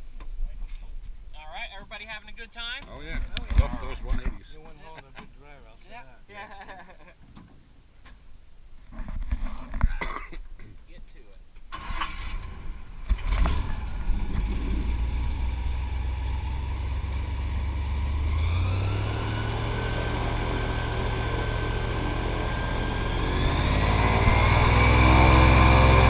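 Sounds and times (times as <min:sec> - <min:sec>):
airboat engine and propeller: 0:13.3 - 0:26.0.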